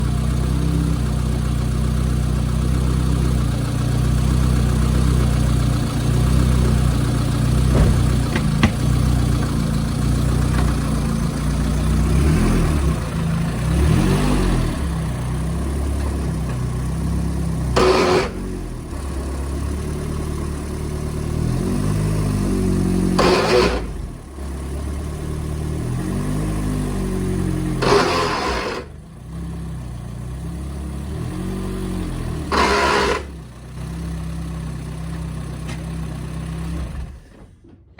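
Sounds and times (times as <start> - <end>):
car engine revving: 4.8 - 20.4, 21.0 - 29.0, 31.1 - 33.4
harsh bursts from broken axle: 6.8 - 18.7, 22.8 - 24.2, 27.4 - 29.1, 32.4 - 33.5.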